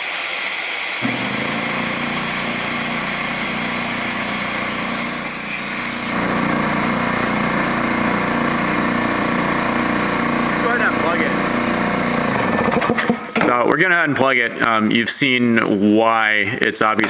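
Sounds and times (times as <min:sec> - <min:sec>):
air hissing: 0:01.0 - 0:12.7
air compressor motor running: 0:01.0 - 0:13.4.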